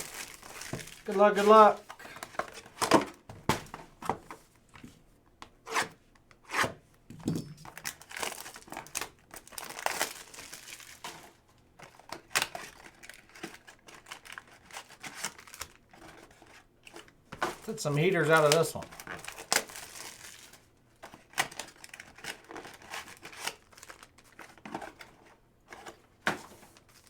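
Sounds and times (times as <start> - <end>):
wrappers tearing open: 0.0 - 1.7, 7.7 - 15.9, 17.6 - 25.0
card pack wrappers crinkling: 0.0 - 2.7, 7.7 - 16.3, 17.6 - 25.0.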